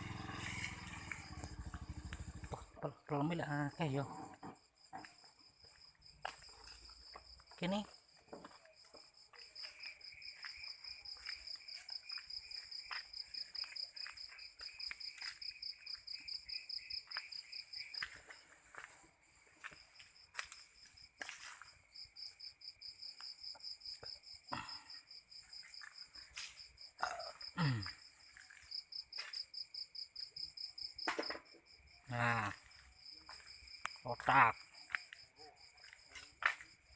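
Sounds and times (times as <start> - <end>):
cricket trilling: 0.0 - 36.9
footsteps: 4.4 - 7.6, 17.1 - 21.8, 32.6 - 33.6, 35.8 - 36.8.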